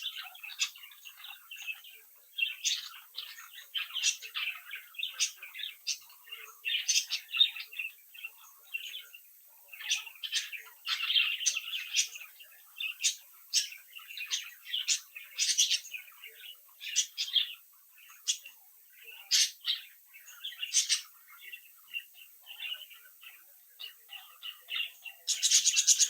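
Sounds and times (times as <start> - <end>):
budgerigars chirping and chattering: 0.0 - 26.0.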